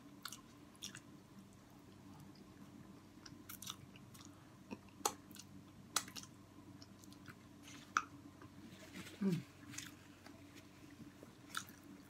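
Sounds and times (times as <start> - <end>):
faint steady hum: 0.0 - 12.0
wet chewing: 0.2 - 1.1.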